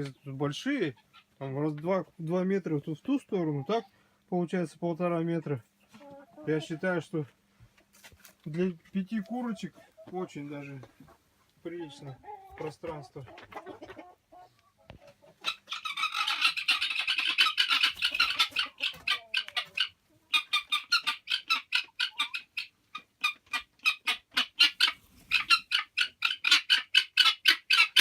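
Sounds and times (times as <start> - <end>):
poultry calling: 5.8 - 7.0, 9.0 - 28.0.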